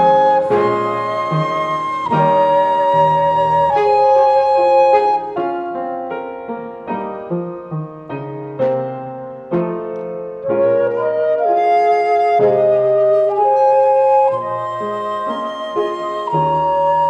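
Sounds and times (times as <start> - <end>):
flute: 0.0 - 6.6, 10.4 - 17.0
piano playing slow notes and chords: 0.0 - 17.0.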